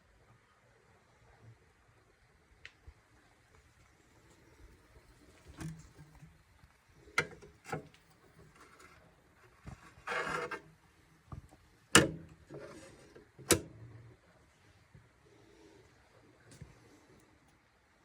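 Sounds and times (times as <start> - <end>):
short scraping rub: 9.6 - 10.7, 12.5 - 13.2.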